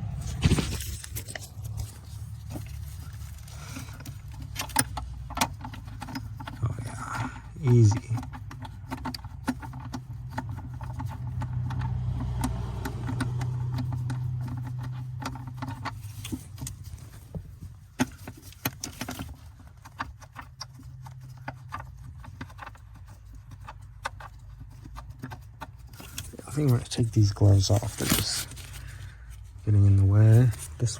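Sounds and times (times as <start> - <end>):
small clicks and knocks: 0.8 - 6.6, 7.7 - 26.4.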